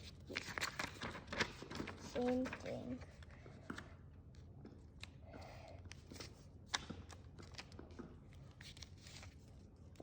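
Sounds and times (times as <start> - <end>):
paper rustling and crinkling: 0.0 - 3.3, 5.9 - 10.0.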